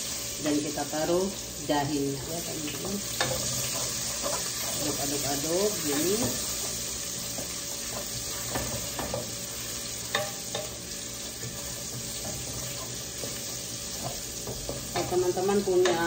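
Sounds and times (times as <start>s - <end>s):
garlic sizzling in hot oil: 0.0s - 16.0s
wooden spatula scraping pot: 11.4s - 16.0s.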